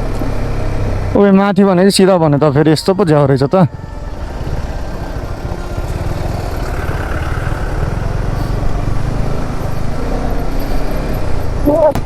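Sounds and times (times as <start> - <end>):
motorcycle engine rumble: 1.9 - 12.0.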